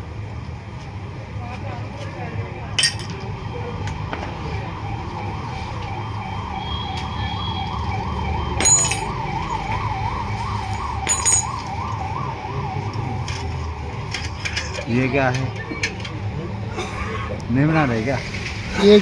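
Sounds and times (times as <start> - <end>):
wavering siren: 3.1 - 15.6
sharp metallic clinks: 8.6 - 9.4, 10.7 - 11.8.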